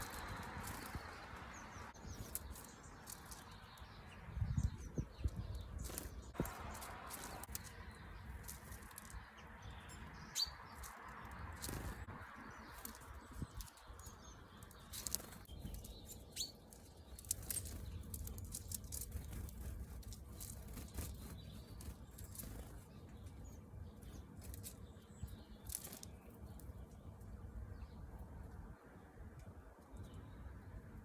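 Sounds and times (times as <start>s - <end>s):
high bird chirps: 0.0s - 19.7s
bird wing flutters and taps: 16.8s - 22.8s.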